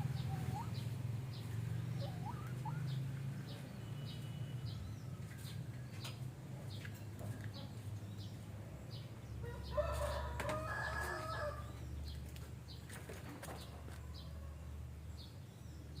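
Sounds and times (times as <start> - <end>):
lovebirds chirping: 0.0 - 14.5
rooster crowing: 9.4 - 11.8.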